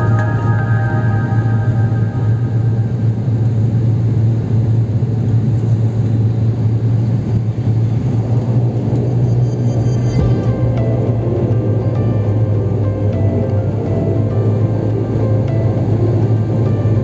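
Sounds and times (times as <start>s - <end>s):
engine and airflow rumble: 0.0s - 17.0s
propeller drone: 0.0s - 17.0s.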